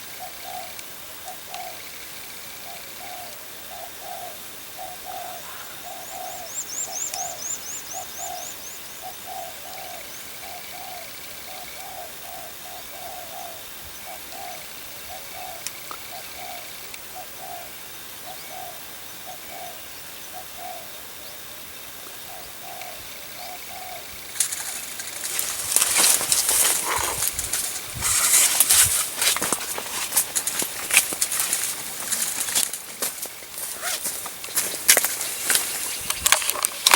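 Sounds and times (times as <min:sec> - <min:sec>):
dove cooing: 0:22.3 - 0:32.5
rustling or flapping: 0:24.4 - 0:36.9.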